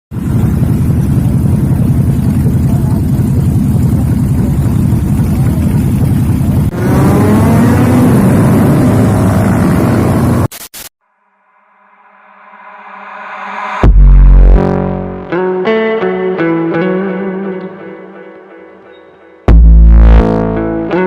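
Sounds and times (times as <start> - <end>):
motorcycle accelerating: 0.1 - 10.5
motorcycle engines rumbling: 0.1 - 10.5.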